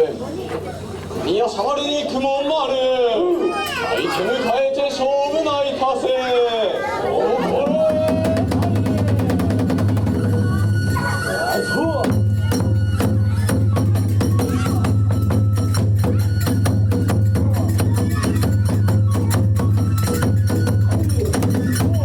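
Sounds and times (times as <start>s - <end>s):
taiko drum: 7.5s - 22.0s
clashing hand cymbals: 9.1s - 22.0s.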